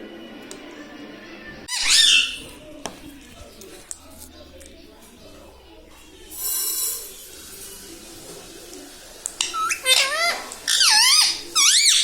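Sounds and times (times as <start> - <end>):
parrot screeching: 1.7 - 2.4, 9.4 - 12.0
parrot shrill swooping calls: 1.7 - 2.4, 9.4 - 12.0.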